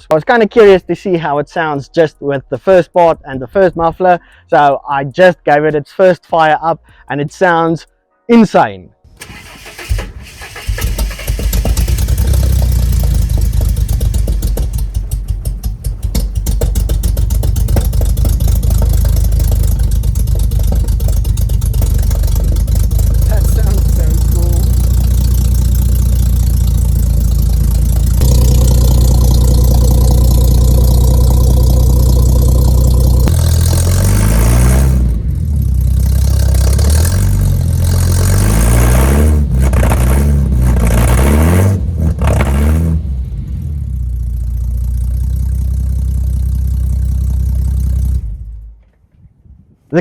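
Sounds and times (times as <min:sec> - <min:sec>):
car engine revving: 0:09.2 - 0:48.6.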